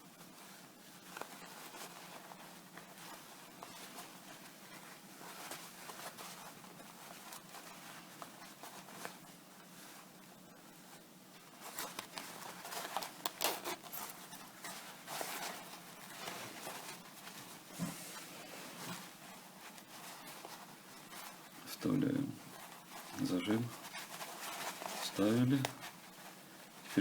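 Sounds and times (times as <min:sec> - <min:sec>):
fabric rustling: 0:00.0 - 0:27.0
metal zipper scraping and clicking: 0:13.2 - 0:14.0.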